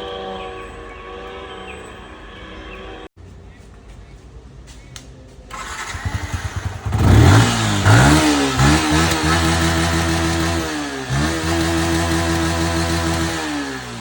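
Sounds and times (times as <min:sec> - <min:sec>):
motorcycle engine revving: 0:05.5 - 0:14.0.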